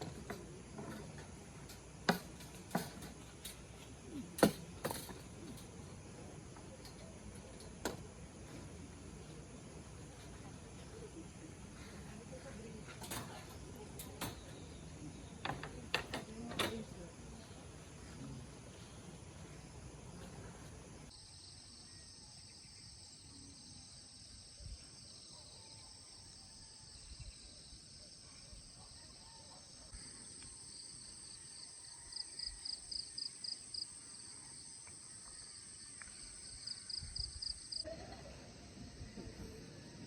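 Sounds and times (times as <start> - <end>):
high-pitched insect chorus: 0.0 - 40.0
rapidly pulsed insect trill: 16.3 - 40.0.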